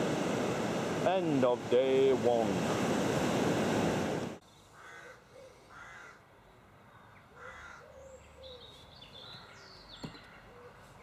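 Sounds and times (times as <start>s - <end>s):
bird calling: 6.9s - 11.0s.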